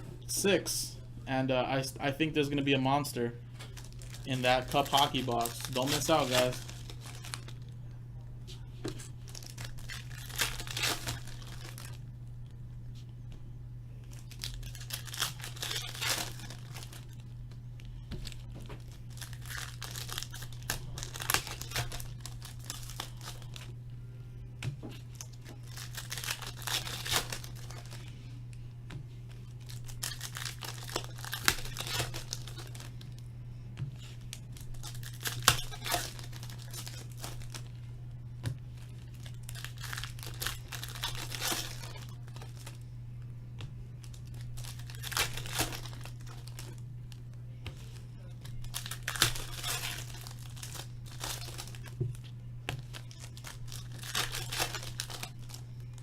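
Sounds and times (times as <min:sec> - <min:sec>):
steady low hum: 0:00.0 - 0:56.0
card wrappers tearing and crinkling: 0:02.0 - 0:07.7, 0:08.9 - 0:12.1, 0:14.1 - 0:17.3, 0:17.9 - 0:23.8, 0:24.8 - 0:28.3, 0:29.5 - 0:33.2, 0:34.0 - 0:37.8, 0:38.7 - 0:42.9, 0:44.0 - 0:46.9, 0:47.7 - 0:56.0.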